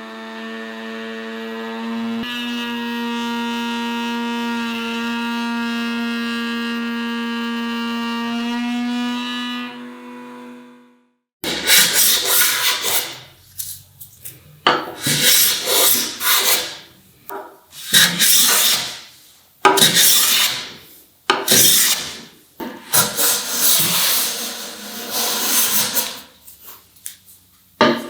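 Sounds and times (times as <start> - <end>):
hand tool scraping wood: 11.5 - 13.9, 14.7 - 26.5.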